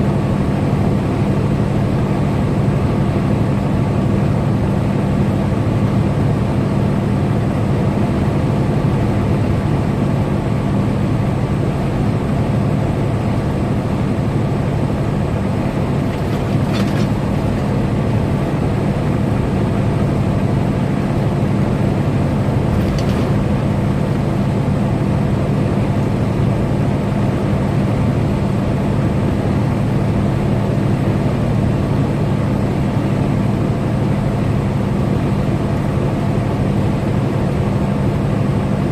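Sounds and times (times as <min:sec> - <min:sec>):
truck engine and road noise: 0:00.0 - 0:38.9.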